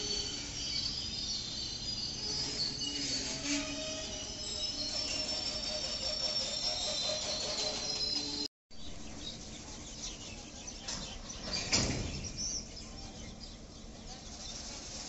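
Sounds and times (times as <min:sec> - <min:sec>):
high wheel squeal: 0:00.0 - 0:08.5
train wagons rolling: 0:00.0 - 0:15.0.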